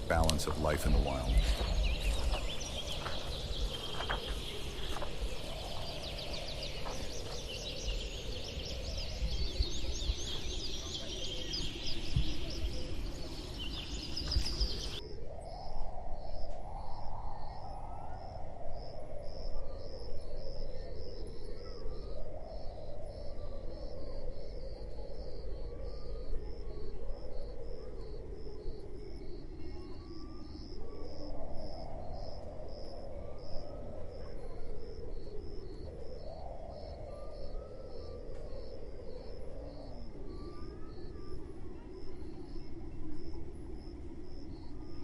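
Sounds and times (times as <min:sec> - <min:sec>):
wild birds chirping: 0:00.0 - 0:15.0.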